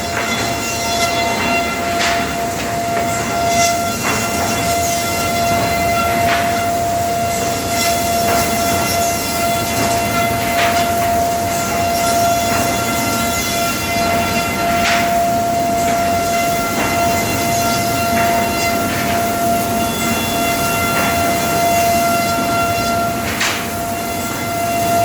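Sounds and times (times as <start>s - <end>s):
woodworking machine whining: 0.0s - 25.0s.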